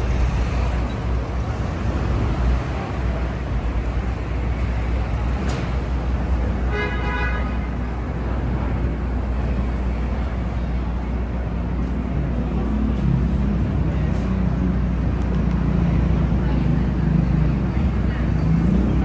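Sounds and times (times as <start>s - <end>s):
city street traffic: 0.0s - 19.0s
car horn: 6.7s - 7.8s.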